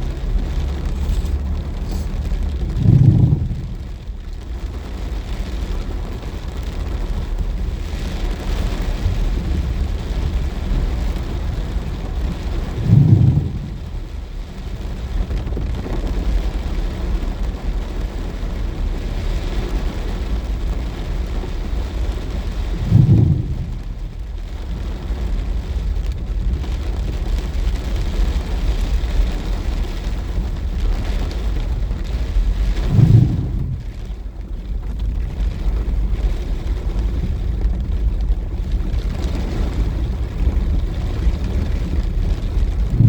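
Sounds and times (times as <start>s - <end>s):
deep rumble: 0.0s - 43.0s
heavy rain falling: 0.0s - 43.0s
low thumps: 0.4s - 5.3s, 12.4s - 14.2s, 22.7s - 24.2s, 32.6s - 34.2s, 42.5s - 43.0s.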